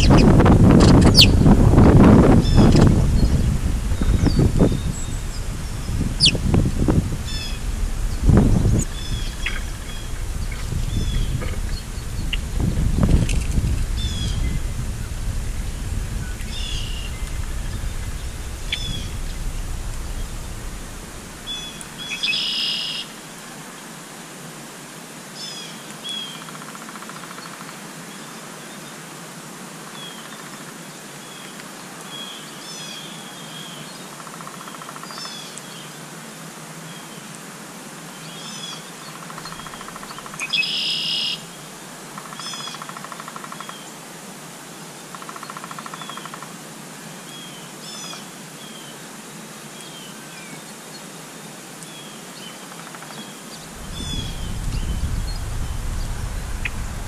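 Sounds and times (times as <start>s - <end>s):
harsh bird calls: 0.0s - 1.5s, 2.4s - 23.0s
small birds chirping: 0.0s - 1.6s, 2.4s - 23.0s
wind rumble on microphone: 0.0s - 23.5s, 39.3s - 40.6s, 53.5s - 57.0s.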